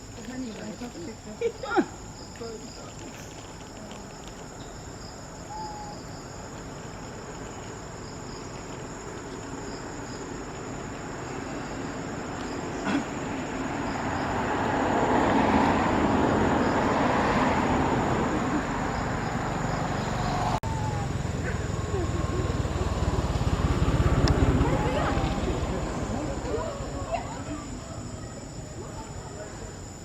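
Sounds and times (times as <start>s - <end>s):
passing vehicle road noise: 8.0s - 30.0s.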